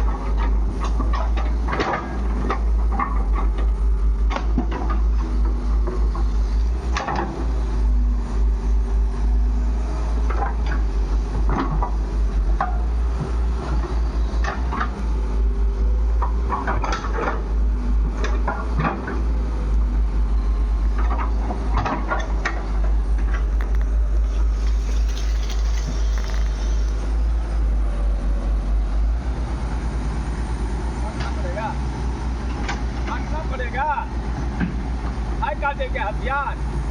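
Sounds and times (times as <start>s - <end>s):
diesel engine running: 0.0s - 36.9s
bucket clanks and knocks: 24.3s - 27.0s.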